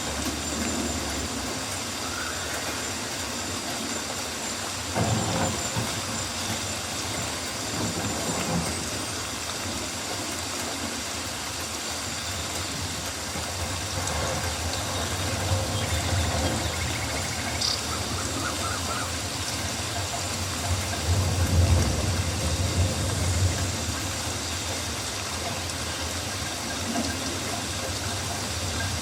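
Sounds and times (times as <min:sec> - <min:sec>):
rain hissing: 0:00.0 - 0:29.0.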